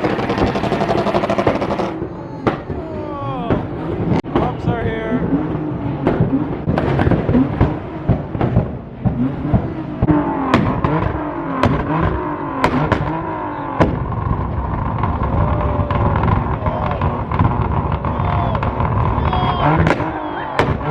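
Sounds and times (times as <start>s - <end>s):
car engine revving: 0.0s - 20.9s
exhaust pops and cracks: 0.0s - 20.9s.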